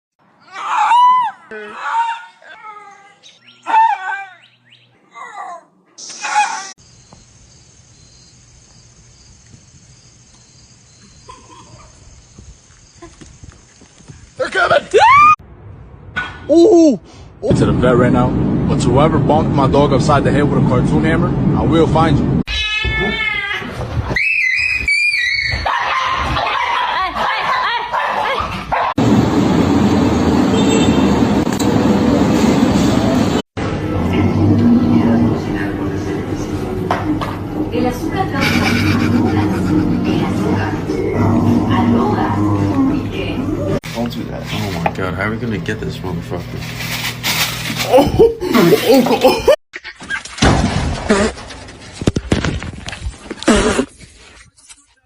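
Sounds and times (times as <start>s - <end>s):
high-pitched insect trill: 6.8s - 14.4s
low rumble: 29.0s - 43.8s
steady dense noise: 29.0s - 46.4s.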